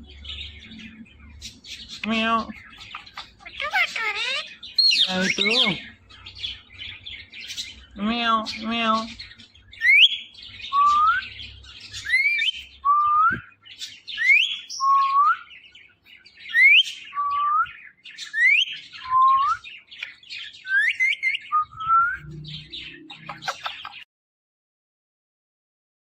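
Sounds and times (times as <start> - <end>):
parrot chatter: 1.5 - 10.0, 22.5 - 24.1.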